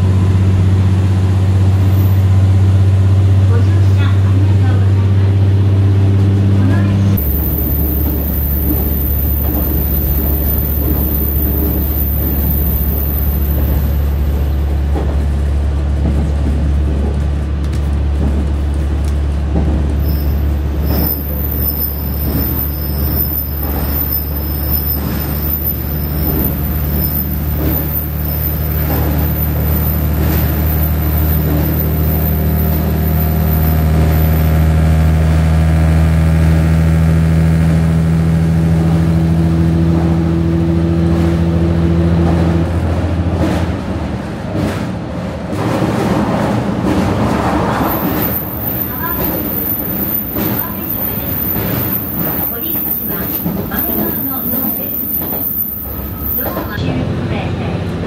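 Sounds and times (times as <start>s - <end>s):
diesel railcar engine drone: 0.0s - 58.0s
wheels rumbling on track: 0.0s - 58.0s
wheels clicking and knocking: 7.2s - 34.5s, 44.5s - 56.8s.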